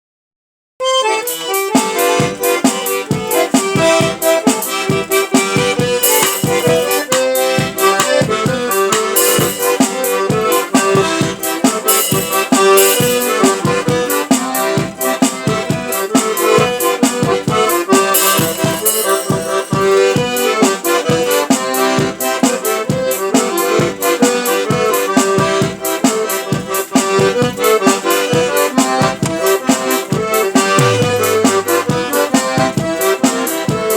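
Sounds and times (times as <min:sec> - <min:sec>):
accordion melody with bass pulse: 0:00.8 - 0:33.9.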